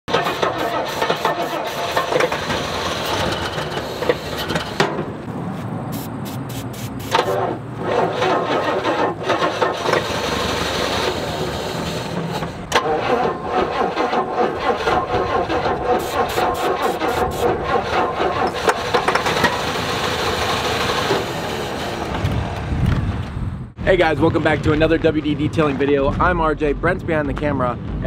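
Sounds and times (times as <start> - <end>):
starter motor cranking engine: 0.1 - 4.8, 7.1 - 22.2.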